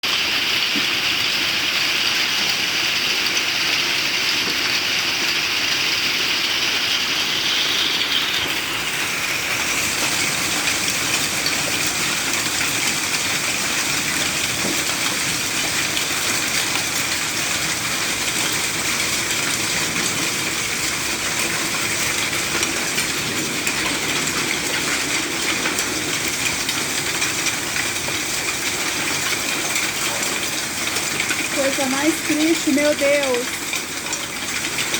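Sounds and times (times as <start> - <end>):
heavy rain and hail pelting: 0.1 - 34.9.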